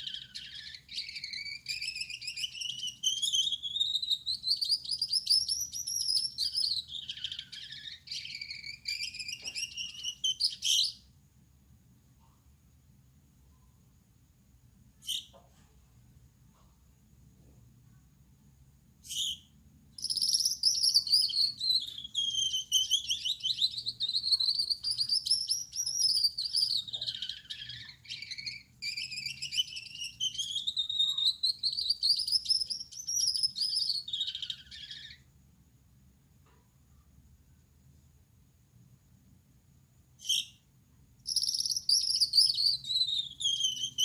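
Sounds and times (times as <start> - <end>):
finch singing trilled notes: 20.0 - 35.2, 41.3 - 44.0.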